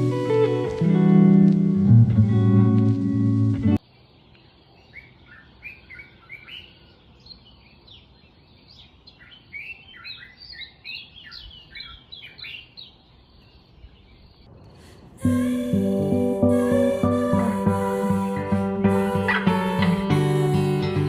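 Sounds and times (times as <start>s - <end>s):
faint steady hiss: 0.0s - 5.7s
small birds chirping: 3.8s - 14.8s.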